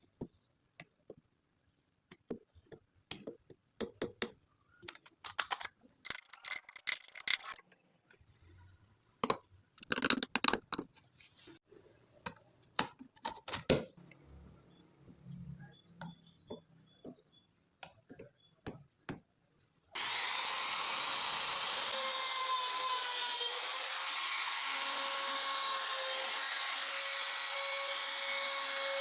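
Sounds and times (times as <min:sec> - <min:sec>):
parts clicking and knocking: 0:02.2 - 0:07.9, 0:09.2 - 0:11.0.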